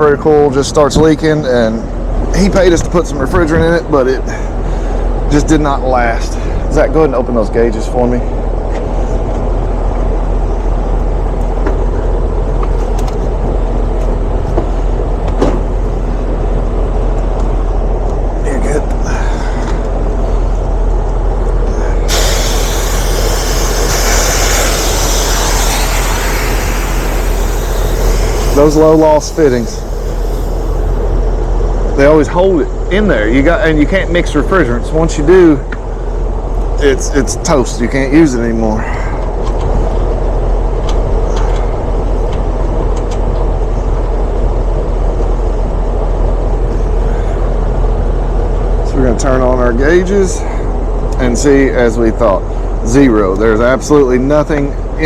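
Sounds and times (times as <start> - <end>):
steady low drone: 8.2 - 38.2
pressurised gas hissing: 22.0 - 31.4
loud machine hum: 22.0 - 33.0.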